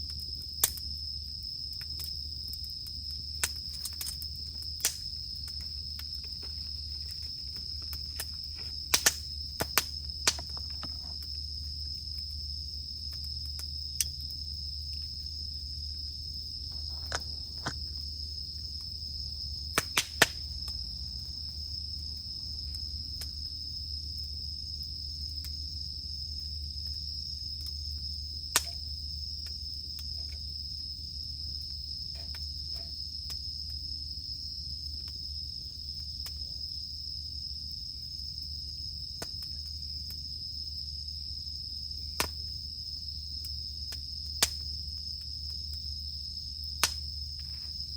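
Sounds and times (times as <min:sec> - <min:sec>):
campfire rumbling and crackling: 0:00.0 - 0:47.9
cicadas droning: 0:00.0 - 0:47.9.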